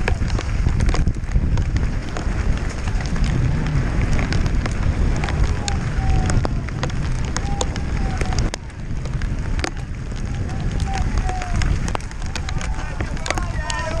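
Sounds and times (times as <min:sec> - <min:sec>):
bike rattling clicks: 0:00.0 - 0:14.0
bike tyres rumbling over rocks: 0:00.0 - 0:14.0
wind on microphone: 0:00.0 - 0:14.0.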